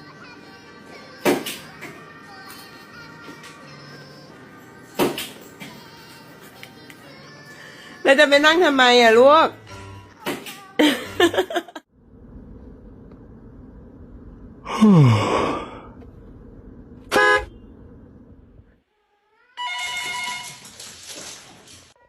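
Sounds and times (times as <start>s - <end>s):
honk-like tone: 17.1s - 17.6s, 19.6s - 20.6s.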